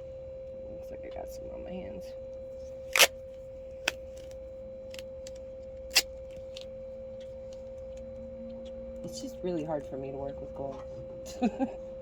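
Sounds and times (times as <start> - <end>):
steady background hum: 0.0 - 12.0
duct tape ripping: 2.9 - 3.2, 5.9 - 6.6.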